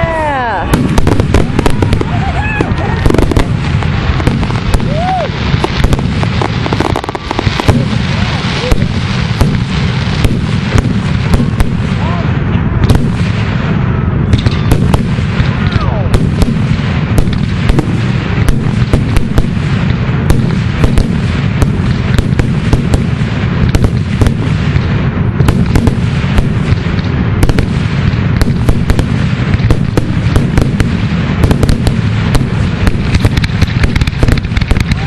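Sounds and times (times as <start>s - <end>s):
fireworks bursting: 0.0s - 35.0s.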